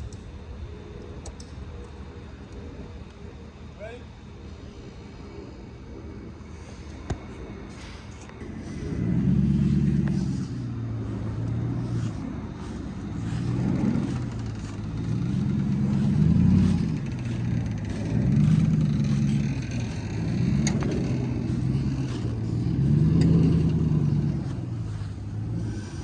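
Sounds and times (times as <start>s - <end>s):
car engine revving: 8.4s - 26.0s.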